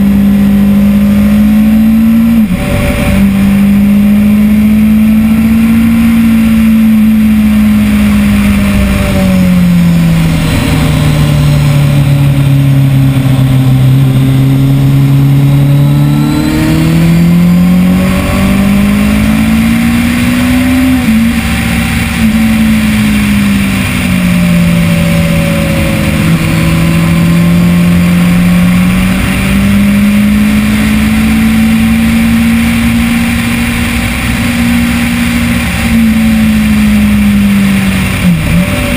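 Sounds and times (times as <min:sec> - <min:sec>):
motorcycle engine at speed: 0:00.0 - 0:38.9
wind rush: 0:05.3 - 0:15.4.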